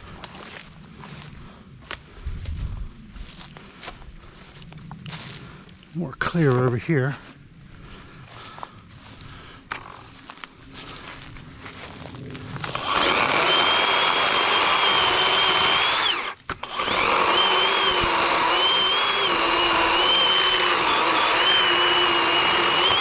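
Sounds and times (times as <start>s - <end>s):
electric chainsaw cutting wood: 9.7s - 10.4s, 12.6s - 23.0s.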